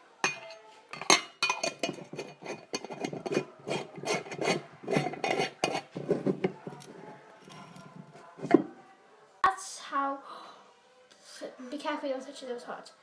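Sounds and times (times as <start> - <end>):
rhythmic rasping strokes: 2.0 - 8.6.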